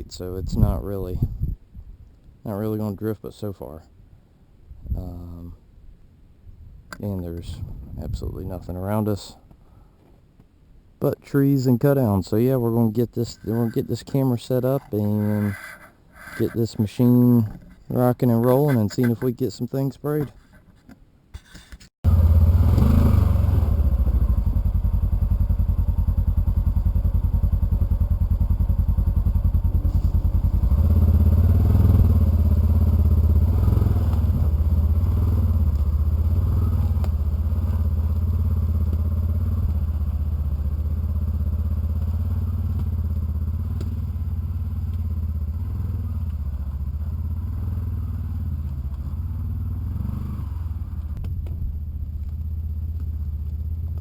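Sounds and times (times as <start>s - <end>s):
vehicle engine running: 22.1s - 54.0s.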